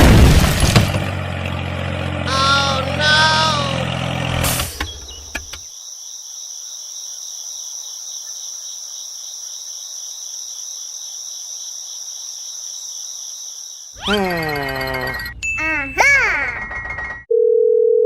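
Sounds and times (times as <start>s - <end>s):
crickets chirping: 5.0s - 14.0s.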